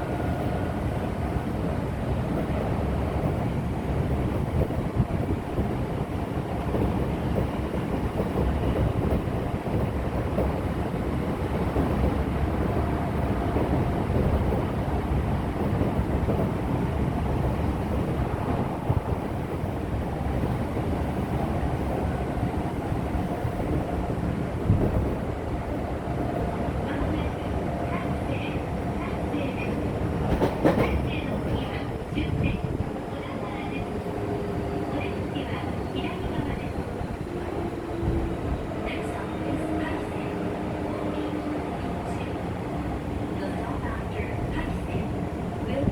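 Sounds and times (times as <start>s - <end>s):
wheels rumbling on rail: 0.0s - 45.9s.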